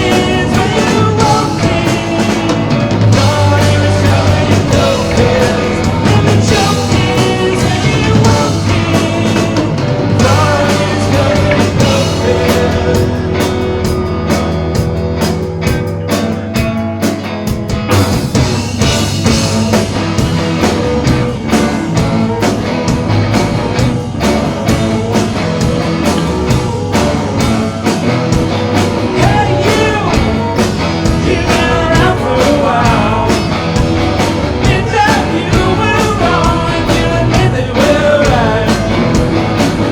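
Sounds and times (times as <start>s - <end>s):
person singing: 0.0s - 13.7s, 29.1s - 39.3s
live rock band playing: 0.0s - 39.9s.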